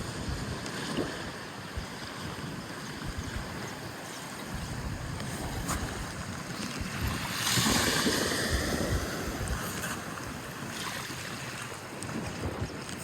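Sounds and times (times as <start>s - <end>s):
sea waves washing onto shore: 0.0s - 13.0s
wind rumbling on microphone: 0.0s - 13.0s.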